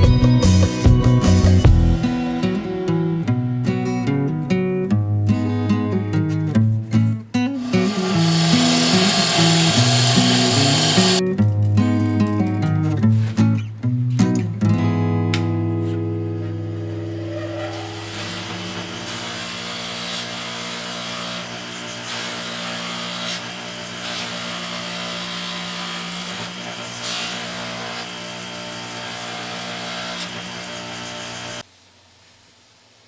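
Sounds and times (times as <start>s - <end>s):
power tool motor humming: 7.6s - 11.2s, 16.6s - 31.6s
rushing rubbing noise: 16.6s - 19.6s.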